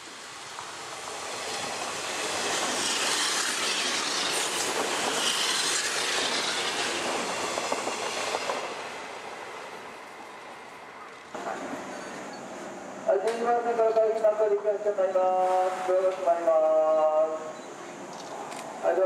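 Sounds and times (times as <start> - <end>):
electric train passing: 0.0 - 13.8
train wheels clattering on rails: 1.4 - 8.9.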